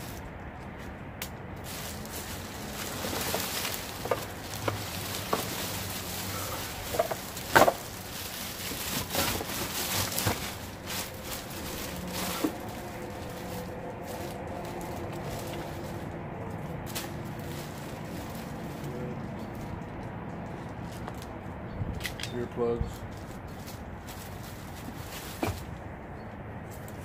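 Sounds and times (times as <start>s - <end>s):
household items knocking and clattering: 6.8s - 8.0s.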